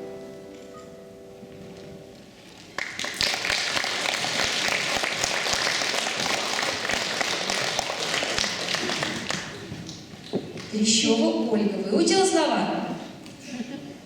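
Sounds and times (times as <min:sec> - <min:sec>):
audience applauding: 0:02.7 - 0:10.3.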